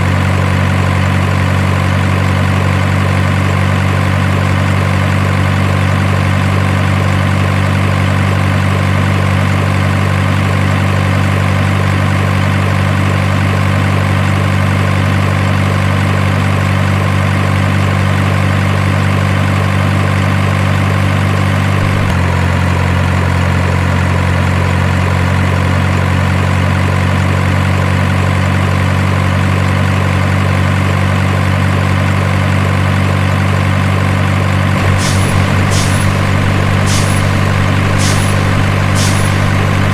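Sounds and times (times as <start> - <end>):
heavy truck engine idling: 0.0 - 23.0, 33.5 - 39.9.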